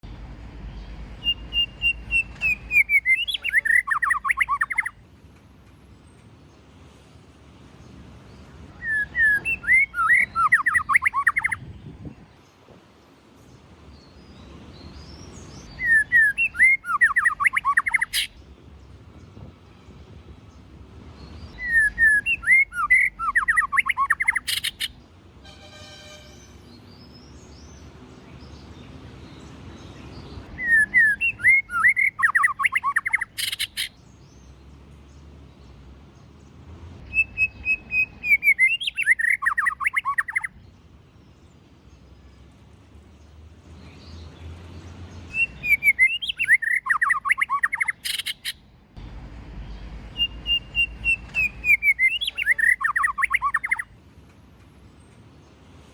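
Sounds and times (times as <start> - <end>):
bird singing whistled phrases: 1.2 - 5.0, 8.8 - 11.6, 15.7 - 18.3, 21.5 - 24.9, 30.6 - 33.9, 37.0 - 40.5, 45.3 - 48.6, 50.1 - 53.9.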